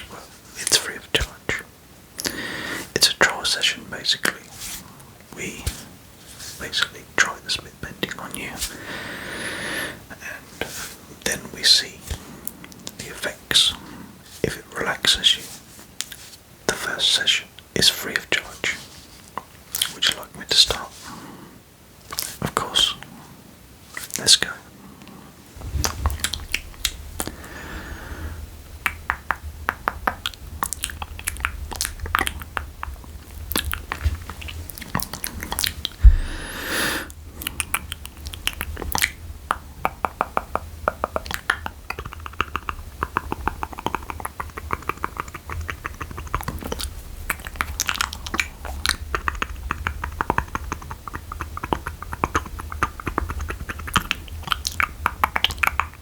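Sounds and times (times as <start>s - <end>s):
lip smacks: 19.3s - 20.8s, 22.1s - 23.0s, 25.0s - 56.0s
wet mouth sounds: 25.6s - 56.0s
tongue clicks: 28.8s - 56.0s
breathy rush: 36.0s - 37.1s.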